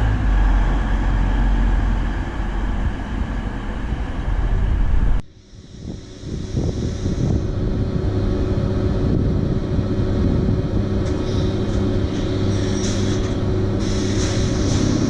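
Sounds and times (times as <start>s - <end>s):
train engine droning: 0.0s - 15.0s
hissing bursts: 13.8s - 15.0s.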